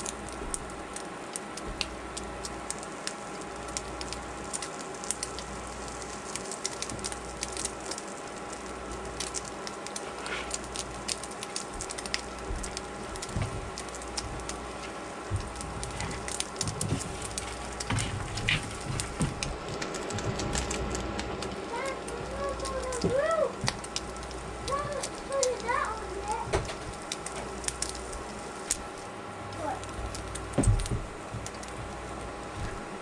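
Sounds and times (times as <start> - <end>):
food sizzling in a frying pan: 0.0 - 29.0
faint steady hum: 0.0 - 33.0.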